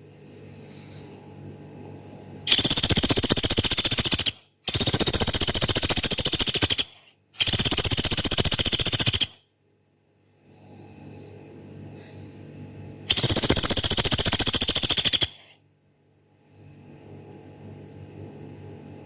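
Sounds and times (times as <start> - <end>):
woodpecker rattling: 2.5 - 9.4, 13.1 - 15.4.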